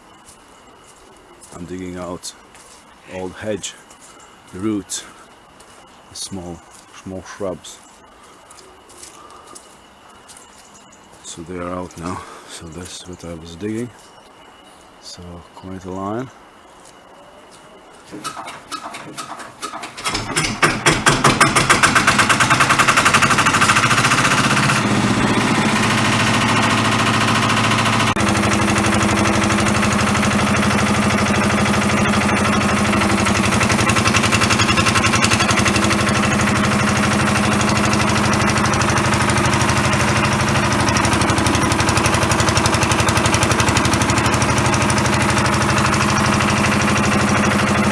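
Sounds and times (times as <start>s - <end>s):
diesel engine running: 18.1s - 47.9s.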